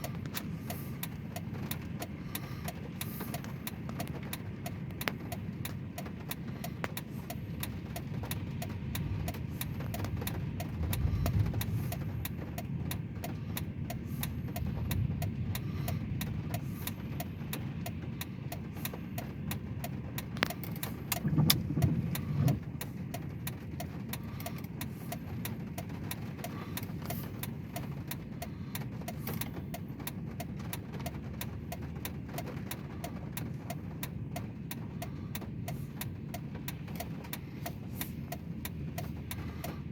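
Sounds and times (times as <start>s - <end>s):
car cabin rumble: 0.0s - 39.9s.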